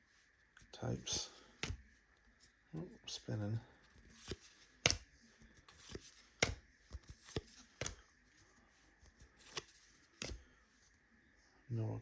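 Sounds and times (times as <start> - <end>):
cards snapping while flipped: 1.6 - 1.8, 3.9 - 8.0, 9.0 - 10.4.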